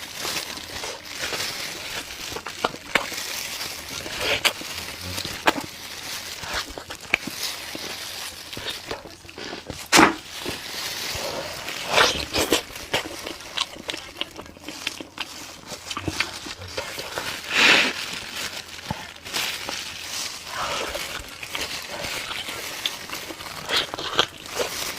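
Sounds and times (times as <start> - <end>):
wet chewing and lip smacks: 12.0 - 17.3, 20.9 - 24.9.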